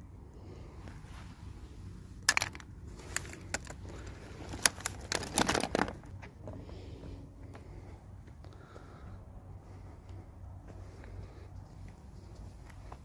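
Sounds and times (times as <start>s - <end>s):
low steady hum: 0.0s - 13.0s
plastic pieces rattling: 2.2s - 6.1s
plastic toy pieces clicking: 2.3s - 3.8s.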